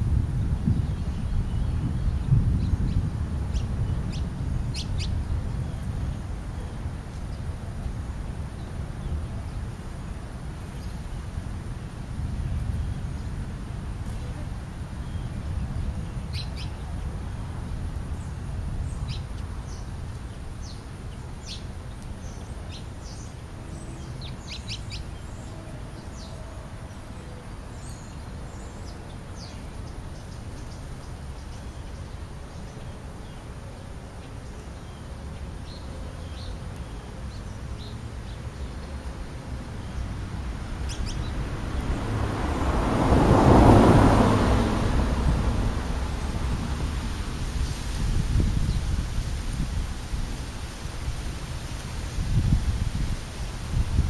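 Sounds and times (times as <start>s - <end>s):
broad rush of noise: 0.0s - 54.0s
small birds chirping: 14.9s - 17.2s, 18.1s - 40.2s, 40.8s - 42.0s.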